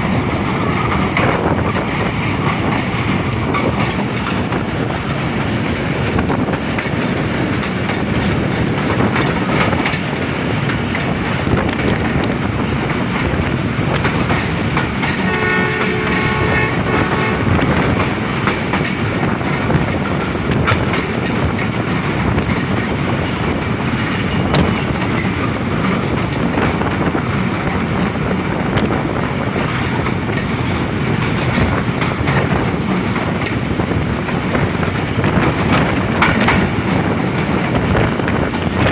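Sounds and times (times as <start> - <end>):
train rumble and wheel clatter: 0.0 - 38.9
locomotive horn: 15.2 - 18.0.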